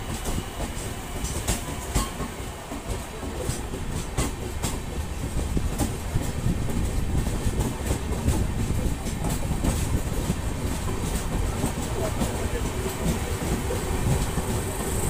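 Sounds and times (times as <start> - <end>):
passenger train rumbling: 0.0 - 15.0
wheels clicking over rail joints: 0.1 - 15.0.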